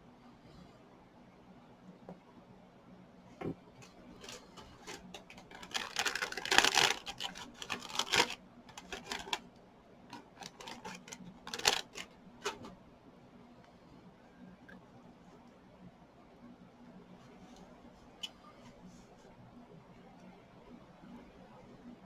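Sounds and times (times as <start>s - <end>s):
plastic items clicking and rattling: 3.4s - 9.4s, 10.1s - 12.7s.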